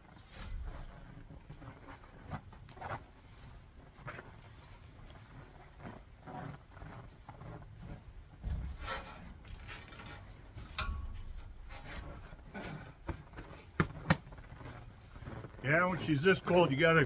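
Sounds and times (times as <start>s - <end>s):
hay rustling and scraping: 0.0s - 12.6s
low knocks: 8.4s - 9.2s.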